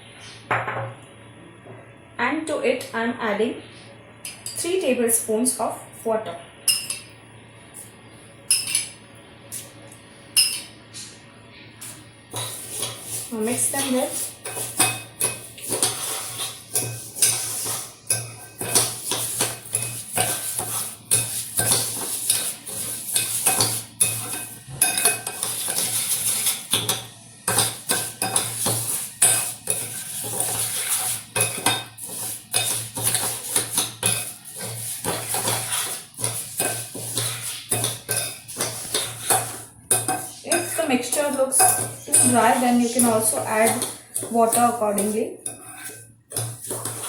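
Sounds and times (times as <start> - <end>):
spoon scraping and clinking in bowl: 8.5 - 9.0, 10.4 - 10.7, 12.3 - 47.0.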